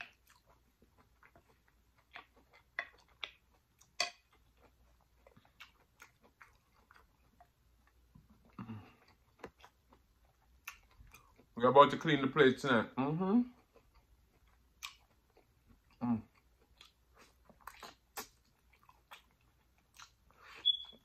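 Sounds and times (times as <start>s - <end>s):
person chewing food: 0.0s - 11.6s, 13.4s - 21.0s
wet mouth clicks and smacks: 16.7s - 20.9s.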